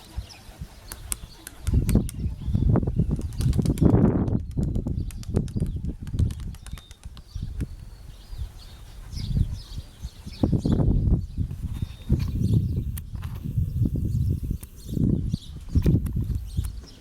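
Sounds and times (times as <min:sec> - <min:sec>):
wind buffeting microphone: 0:00.0 - 0:17.0
pigeon wings flapping: 0:03.2 - 0:07.3.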